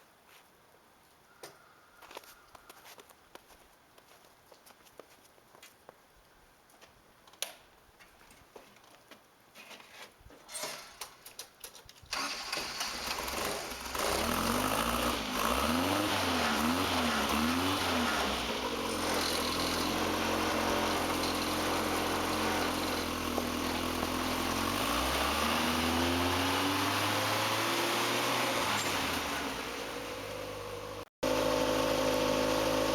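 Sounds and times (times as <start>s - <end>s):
tractor engine revving and idling: 12.1s - 32.9s.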